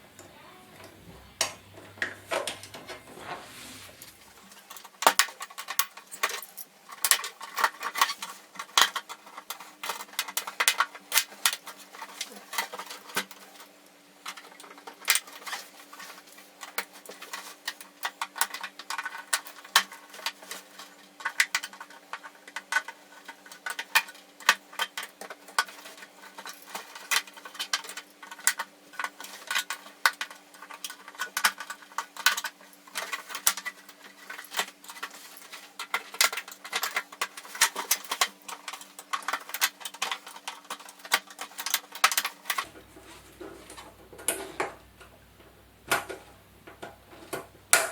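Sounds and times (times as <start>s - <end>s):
small plastic rattles: 4.1s - 47.9s
hand tools clicking and tapping: 14.3s - 47.9s
faint steady low hum: 42.4s - 47.9s.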